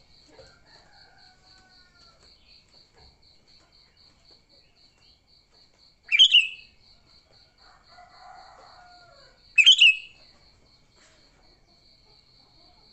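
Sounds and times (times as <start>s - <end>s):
bird chattering calls: 6.1s - 6.6s.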